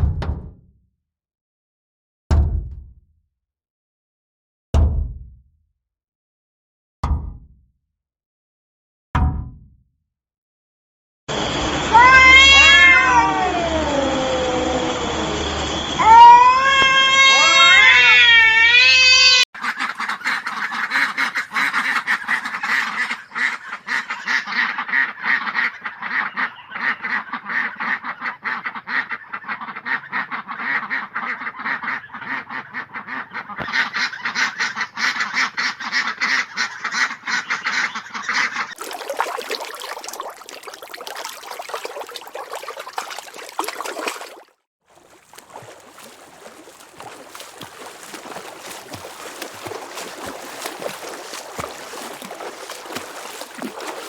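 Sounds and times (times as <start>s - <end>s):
cat meowing: 11.9s - 14.5s, 16.0s - 19.4s
ducks quacking: 18.8s - 44.4s, 45.0s - 54.0s.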